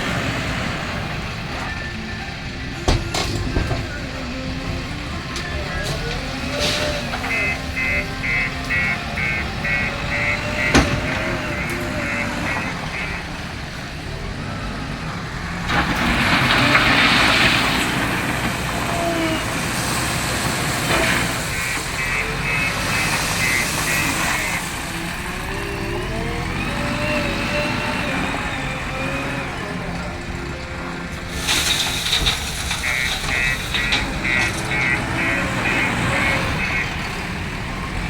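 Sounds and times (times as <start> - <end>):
diesel engine running: 0.0 - 38.0
reversing alarm beeping: 0.0 - 38.0
hiss: 5.8 - 13.2, 15.7 - 26.0, 31.1 - 36.8.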